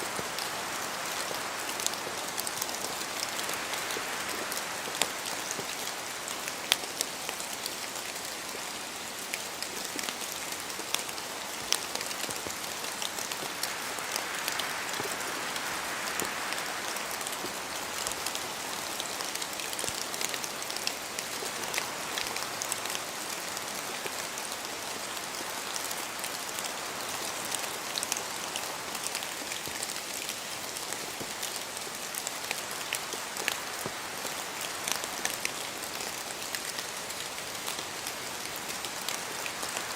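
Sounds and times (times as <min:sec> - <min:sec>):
raindrops pattering and ticking: 0:00.0 - 0:39.9
steady rain falling: 0:00.0 - 0:39.9
wind through trees: 0:00.0 - 0:39.9.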